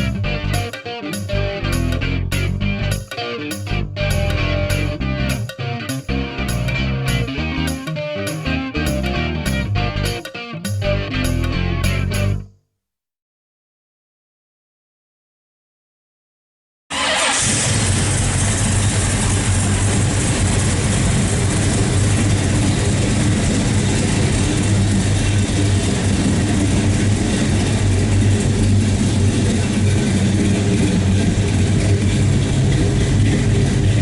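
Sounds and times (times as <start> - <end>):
car engine idling: 1.3 - 7.8, 17.0 - 34.0.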